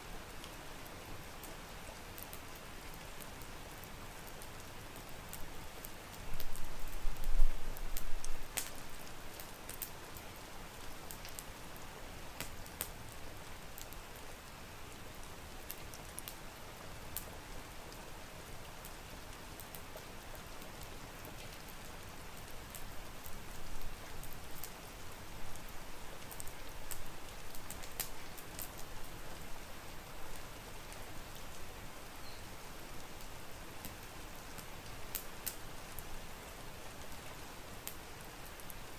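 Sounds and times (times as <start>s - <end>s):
steady rain hiss: 0.0s - 38.9s
wood fire pops and crackles: 6.3s - 10.3s, 12.3s - 14.1s, 25.6s - 28.9s, 33.2s - 35.6s, 37.8s - 38.8s.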